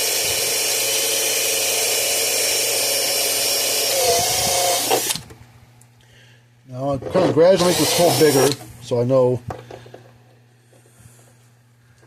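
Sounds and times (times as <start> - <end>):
power drill boring a hole: 0.0 - 5.2, 7.4 - 8.6.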